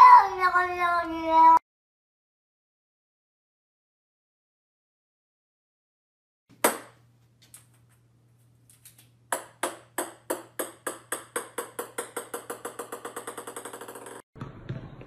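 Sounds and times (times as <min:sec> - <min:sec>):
bouncing taps settling: 0:09.3 - 0:14.8
hard object knocking: 0:09.3 - 0:15.0.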